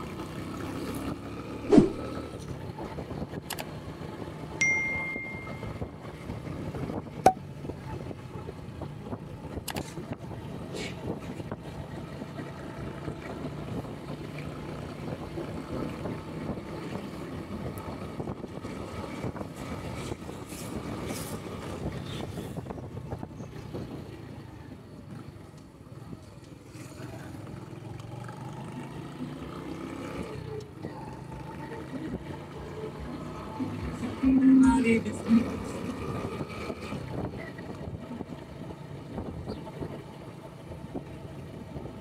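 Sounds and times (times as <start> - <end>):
wind noise on microphone: 5.6 - 11.8, 15.0 - 24.2, 33.7 - 40.1.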